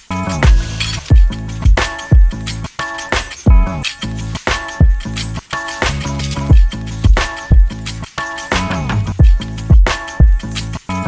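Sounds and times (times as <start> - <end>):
heavy kick drum: 0.4 - 2.4, 3.2 - 3.7, 4.5 - 5.1, 5.9 - 7.8, 8.6 - 10.4.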